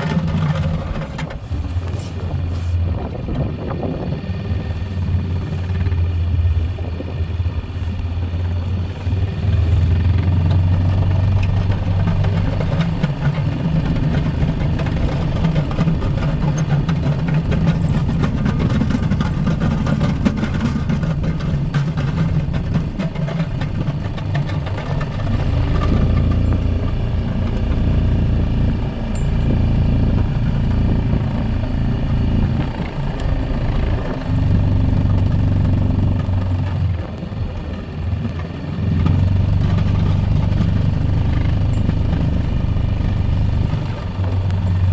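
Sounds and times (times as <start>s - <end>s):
atv engine revving: 0.0s - 44.9s.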